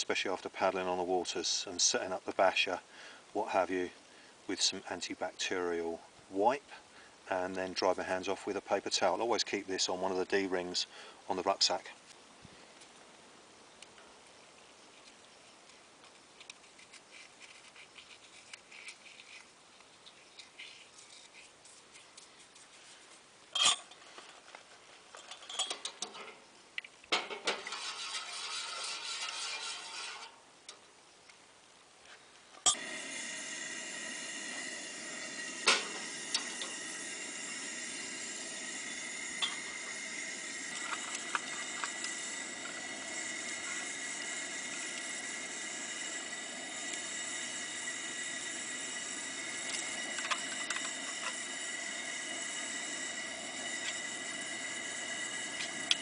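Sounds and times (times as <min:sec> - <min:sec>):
camp stove burner hissing: 0:00.2 - 0:11.8, 0:27.1 - 0:30.8, 0:32.6 - 0:56.0
pots and utensils clinking: 0:23.5 - 0:24.0, 0:25.2 - 0:26.3, 0:39.3 - 0:39.7.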